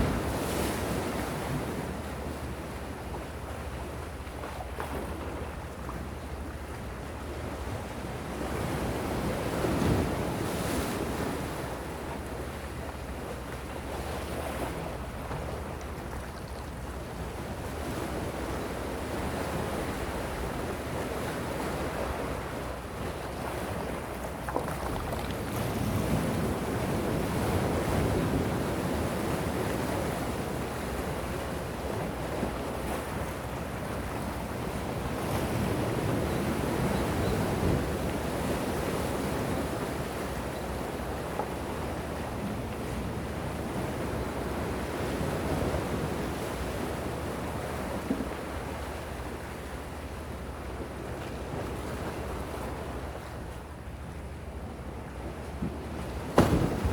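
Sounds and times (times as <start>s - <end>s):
gentle sea waves washing ashore: 0.0s - 56.9s.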